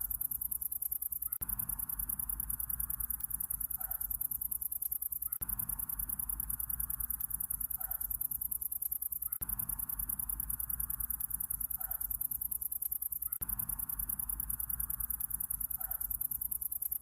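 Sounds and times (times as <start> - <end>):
insects trilling: 0.0 - 17.0
low steady hum: 1.4 - 4.5, 5.4 - 8.5, 9.4 - 12.4, 13.4 - 16.6.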